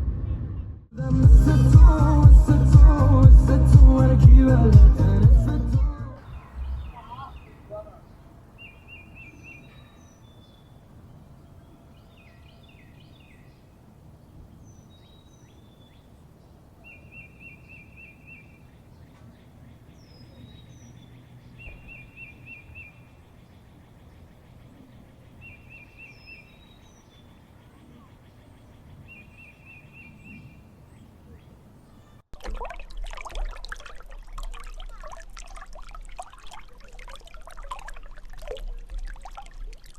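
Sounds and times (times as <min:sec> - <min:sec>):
low background rumble: 0:00.0 - 0:08.8
birds down-slurred whistles: 0:06.2 - 0:10.9, 0:20.0 - 0:23.2, 0:24.3 - 0:32.2.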